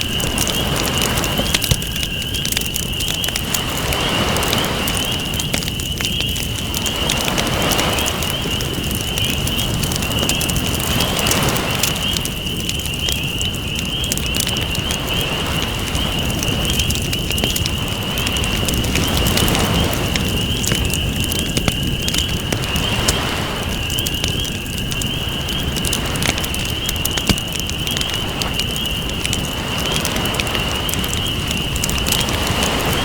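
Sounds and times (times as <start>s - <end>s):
campfire crackling and popping: 0.0s - 33.0s
waves washing in and out: 3.3s - 5.6s, 6.6s - 8.8s, 9.4s - 12.3s, 22.1s - 23.9s, 25.2s - 33.0s.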